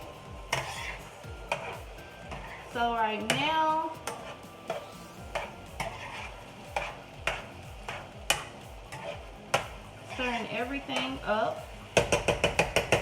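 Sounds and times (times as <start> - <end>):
utensil stirring food in a pan: 0.0 - 13.0
utensil knocking against pan: 6.8 - 9.8, 12.0 - 13.0.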